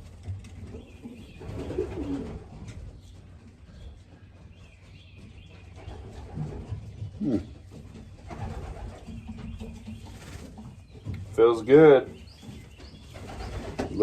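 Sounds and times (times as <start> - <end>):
pigeons cooing: 0.5 - 3.1, 5.8 - 10.6, 12.4 - 14.0.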